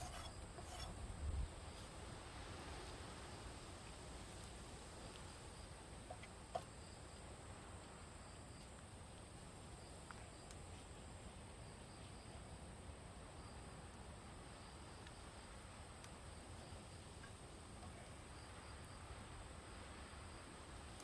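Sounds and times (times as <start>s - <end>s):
faint high insect trill: 0.0s - 21.0s.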